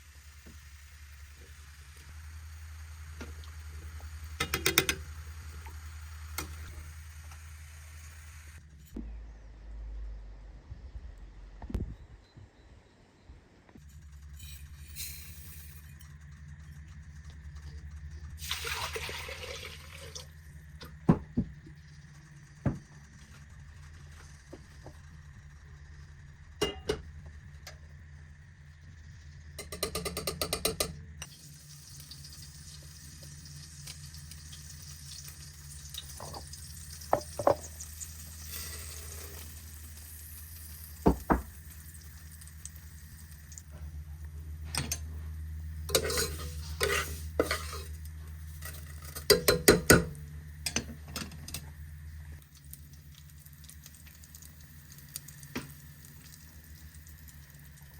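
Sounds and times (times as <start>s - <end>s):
steady low hum: 0.0s - 57.9s
water running: 18.4s - 21.2s.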